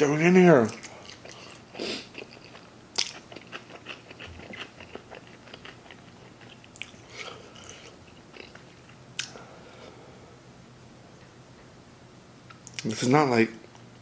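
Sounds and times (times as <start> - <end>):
chewing food with wet clicks: 0.6 - 9.4.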